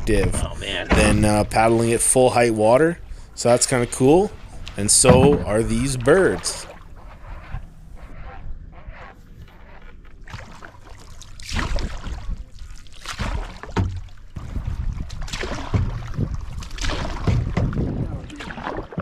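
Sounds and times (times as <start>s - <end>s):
low thuds: 0.0s - 1.7s, 4.6s - 6.0s, 13.7s - 18.2s
canoe paddle strokes splashing: 0.0s - 19.0s.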